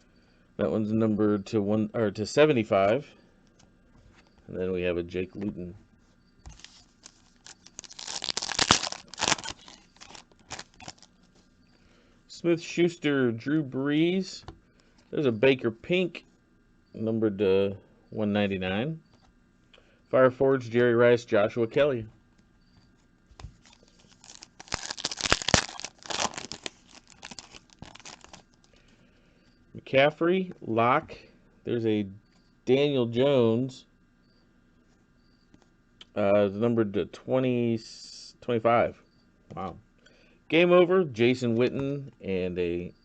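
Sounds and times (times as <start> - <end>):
foil wrapper tearing and crinkling: 6.5 - 11.1, 23.6 - 28.6.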